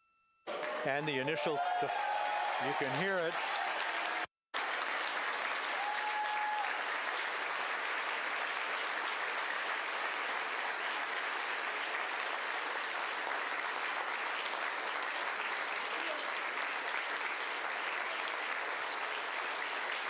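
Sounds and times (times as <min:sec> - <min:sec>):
room full of people applauding: 0:00.5 - 0:20.0.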